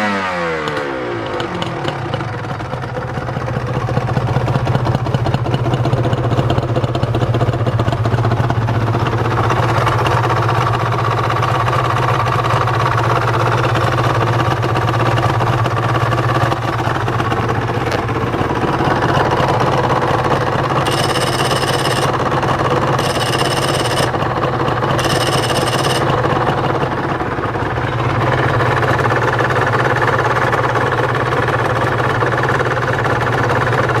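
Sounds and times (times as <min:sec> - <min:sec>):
two-stroke engine idling: 0:00.0 - 0:34.0
high electronic beeps: 0:20.8 - 0:22.1, 0:23.0 - 0:24.1, 0:25.0 - 0:26.1.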